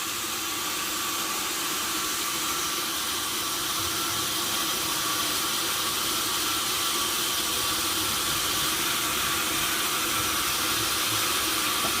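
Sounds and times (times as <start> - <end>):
sawmill machinery hiss: 0.0 - 12.0.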